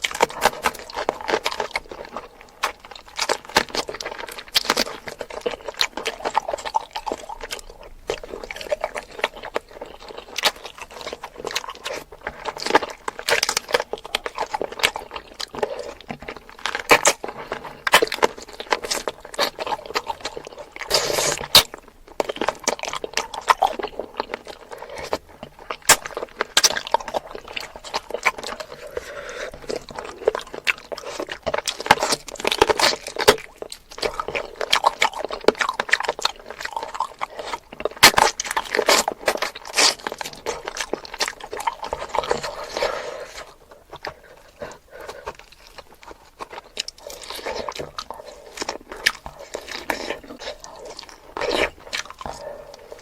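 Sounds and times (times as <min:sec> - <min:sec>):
person chewing food: 0:00.0 - 0:53.0.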